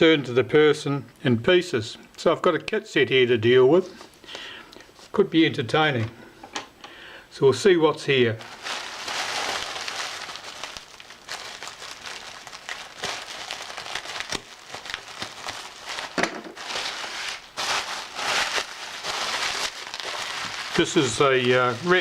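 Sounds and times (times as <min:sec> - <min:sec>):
packaging crinkling and rustling: 0:08.4 - 0:22.0.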